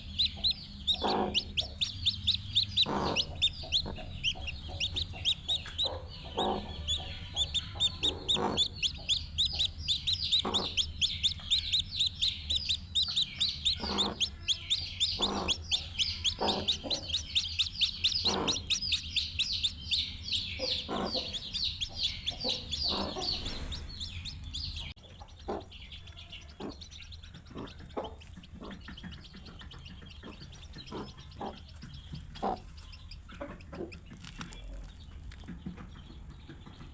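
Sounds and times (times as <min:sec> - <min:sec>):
chicks peeping: 0:00.0 - 0:36.9
hen clucking: 0:00.0 - 0:36.9.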